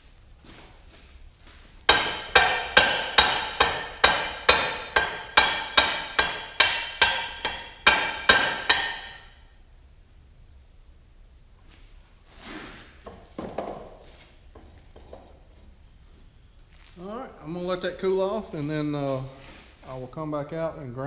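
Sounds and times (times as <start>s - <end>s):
hammer striking steel: 1.9s - 9.4s.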